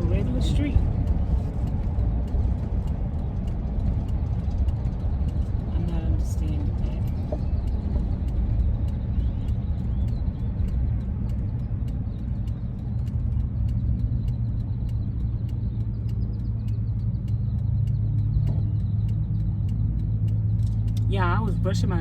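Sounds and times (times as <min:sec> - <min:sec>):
van engine and road rumble: 0:00.0 - 0:22.0.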